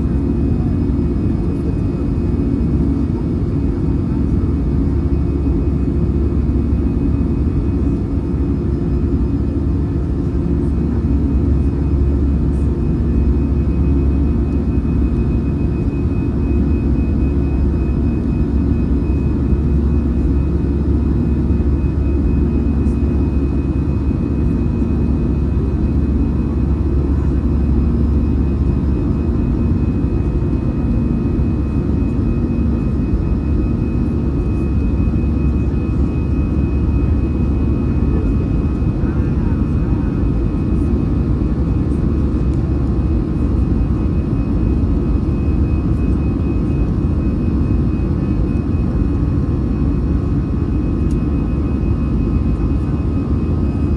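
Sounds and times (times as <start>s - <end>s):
jet engine rumble in cabin: 0.0s - 53.9s.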